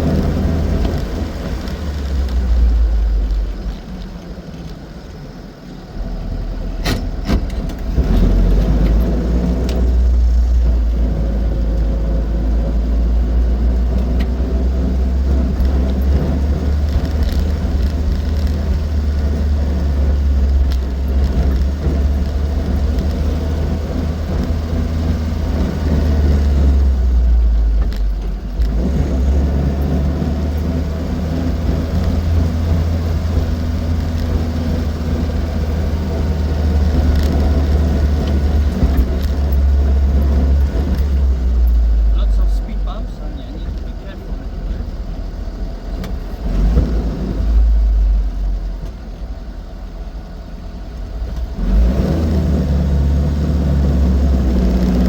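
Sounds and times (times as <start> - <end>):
car engine running while driving: 0.0 - 55.0.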